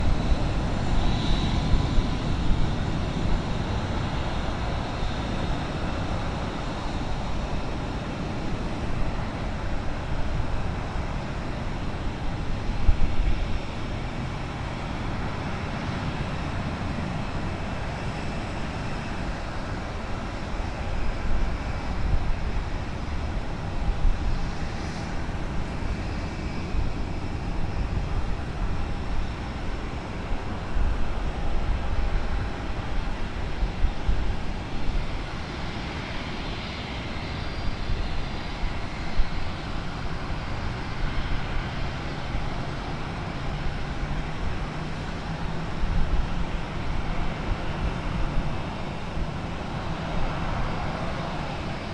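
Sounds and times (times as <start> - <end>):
jet engines rumbling with whine: 0.0 - 51.9.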